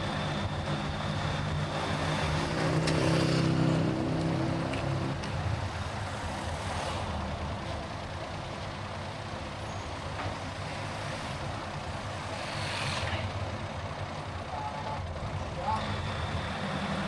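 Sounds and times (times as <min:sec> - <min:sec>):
car engine and tyre rumble: 0:00.0 - 0:17.0
road hiss: 0:10.6 - 0:13.4.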